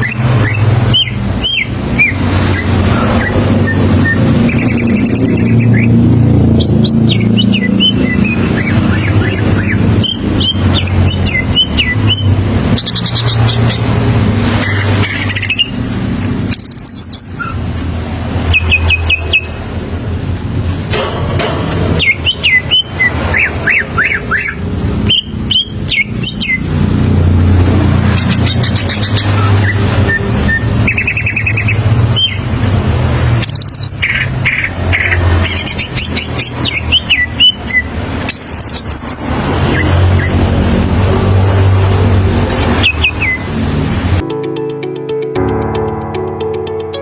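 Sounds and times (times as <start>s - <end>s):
bird singing trills and whistles: 0.0s - 13.9s, 16.5s - 17.6s, 22.0s - 26.7s, 28.1s - 32.5s, 33.4s - 40.4s.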